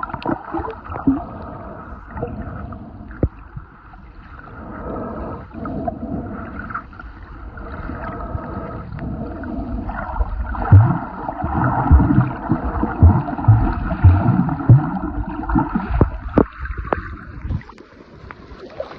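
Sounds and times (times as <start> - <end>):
muffled underwater water sloshing: 0.0 - 18.9
low thumps: 11.9 - 16.5.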